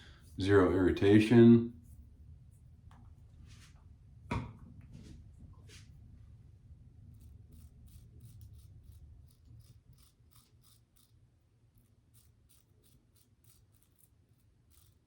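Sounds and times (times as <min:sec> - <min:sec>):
safety razor scraping stubble: 0:07.1 - 0:11.2, 0:12.1 - 0:15.0.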